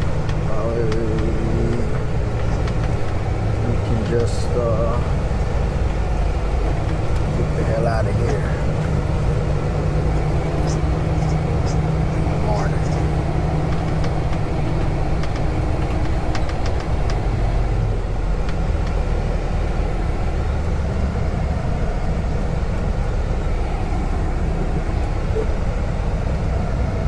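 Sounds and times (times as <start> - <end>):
diesel truck engine rumbling: 0.0 - 27.0
faint clicks: 12.8 - 17.4.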